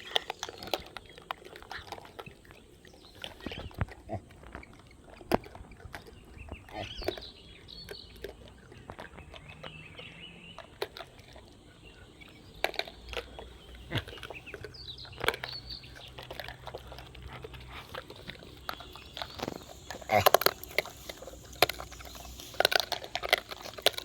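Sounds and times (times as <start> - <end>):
bird chirps: 11.6 - 17.0, 17.8 - 24.0
rustles: 12.1 - 24.0.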